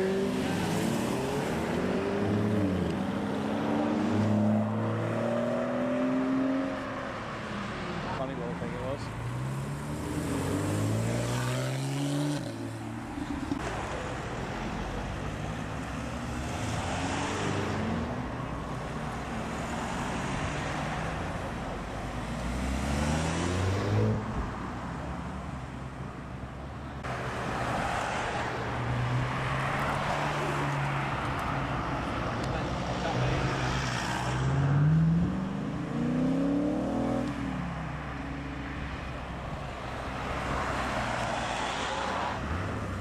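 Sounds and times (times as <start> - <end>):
sports car engines accelerating: 0.0 - 19.0, 27.9 - 43.0
road noise: 0.0 - 43.0.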